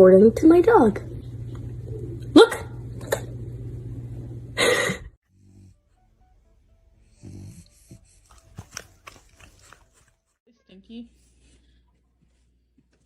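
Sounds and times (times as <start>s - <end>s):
steady low hum: 0.0s - 5.9s
dog snorting: 7.0s - 9.8s.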